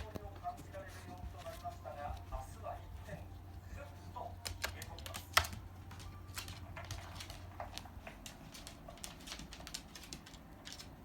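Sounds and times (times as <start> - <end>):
dog claws clicking and tapping: 4.4 - 11.0.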